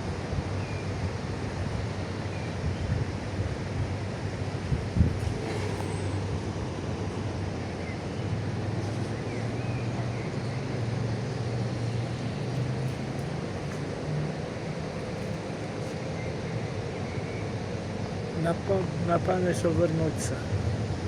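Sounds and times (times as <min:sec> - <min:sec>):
wind-like noise: 0:00.0 - 0:09.3.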